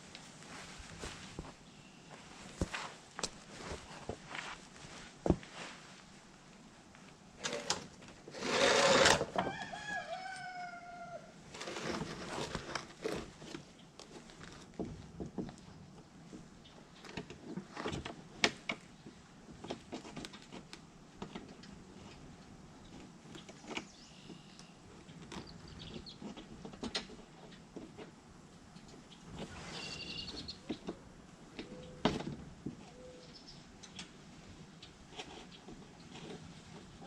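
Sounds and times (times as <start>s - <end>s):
rooster crowing: 9.4s - 11.4s.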